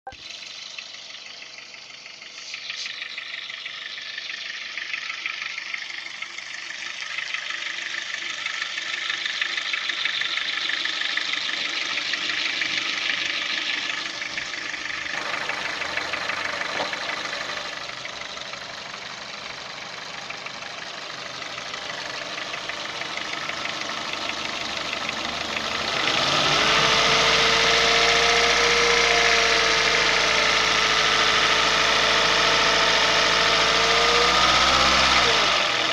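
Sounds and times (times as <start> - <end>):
steady whine: 0.1 - 27.9
engine idling with rattling clatter: 0.1 - 35.9.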